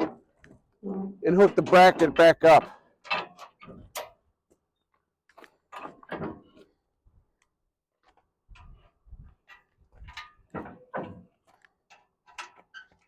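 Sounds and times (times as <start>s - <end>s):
metal clicks and knocks: 0.0s - 4.2s, 9.4s - 13.0s.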